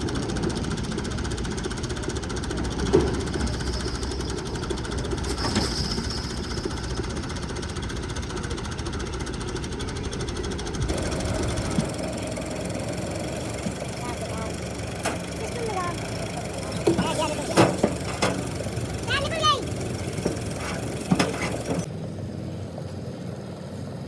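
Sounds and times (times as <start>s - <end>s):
machine rattling: 0.0s - 21.9s.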